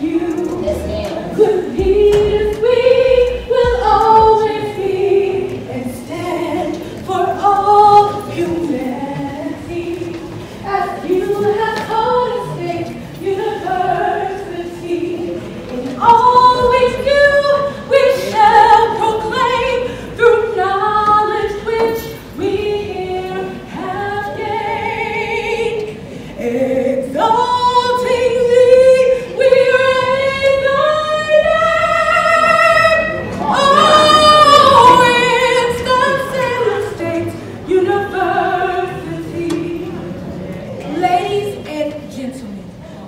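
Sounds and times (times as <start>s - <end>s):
choir singing: 0.0s - 25.8s, 29.3s - 40.2s.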